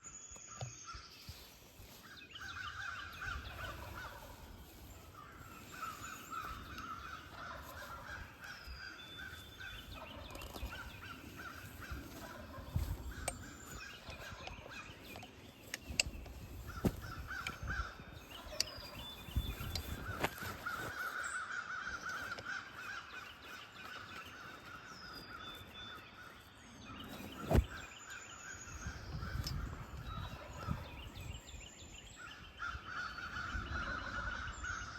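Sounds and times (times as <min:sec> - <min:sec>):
birds calling harshly: 0:00.0 - 0:34.9
wind buffeting microphone: 0:01.9 - 0:21.0, 0:28.6 - 0:34.9.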